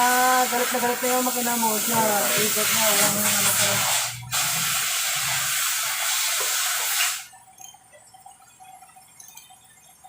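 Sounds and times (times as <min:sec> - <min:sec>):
pressurised jet hissing: 0:00.0 - 0:07.3.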